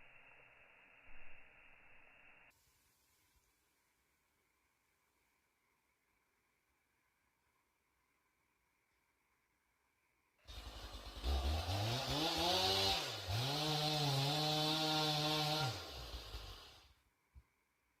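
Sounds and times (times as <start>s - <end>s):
chainsaw revving: 10.5s - 16.9s.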